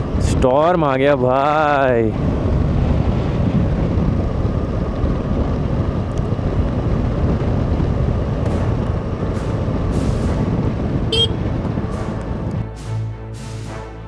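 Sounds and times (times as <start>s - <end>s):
wind buffeting microphone: 0.0s - 12.8s
road noise: 0.0s - 14.0s
motorcycle engine: 4.4s - 12.6s.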